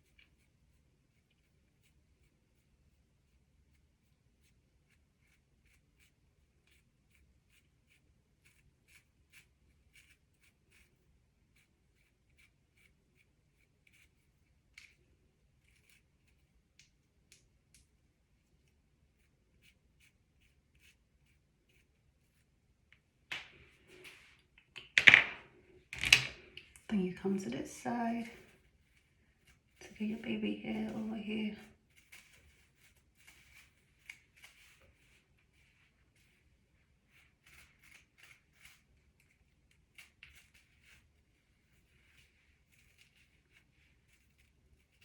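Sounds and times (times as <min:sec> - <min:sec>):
brush scratching strokes: 0:00.0 - 0:16.8, 0:18.2 - 0:22.9, 0:27.2 - 0:45.0
hair rustling: 0:12.6 - 0:45.0.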